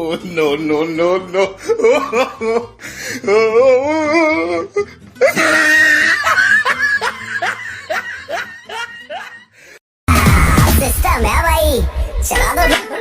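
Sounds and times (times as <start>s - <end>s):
music: 0.0s - 13.0s
comic warbling laugh: 5.2s - 9.4s.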